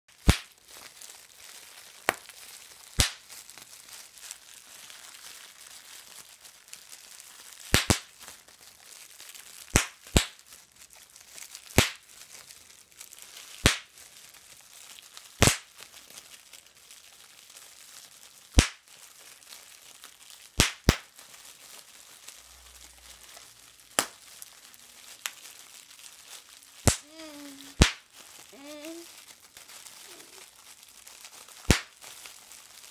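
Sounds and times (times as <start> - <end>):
faint crinkling: 0.1 - 9.7, 10.3 - 32.9
sharp pops: 0.2 - 0.5, 26.8 - 28.0, 31.7 - 31.9.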